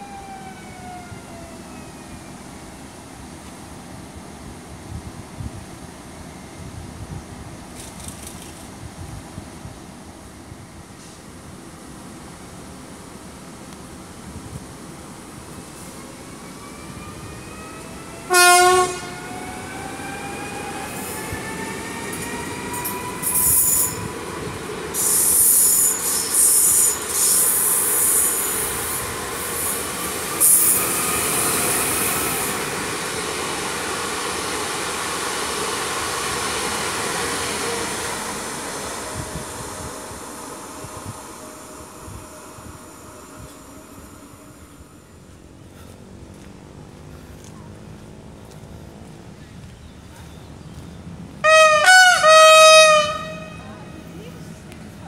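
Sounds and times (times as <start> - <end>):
train running noise: 1.9 - 55.0
train horn blast: 18.2 - 19.6, 51.4 - 54.1.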